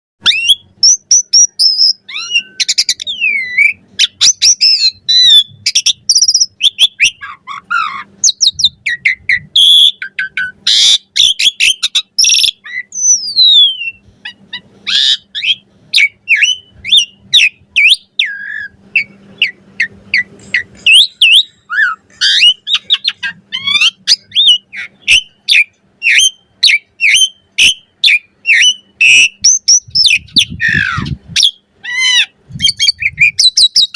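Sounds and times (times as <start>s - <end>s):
harsh rasping bird calls: 0.2s - 33.9s
starling singing chattering song: 0.2s - 33.9s.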